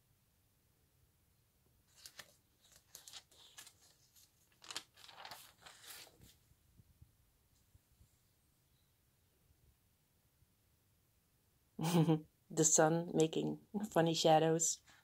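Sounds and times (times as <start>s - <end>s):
photo album pages turning: 1.9s - 6.4s.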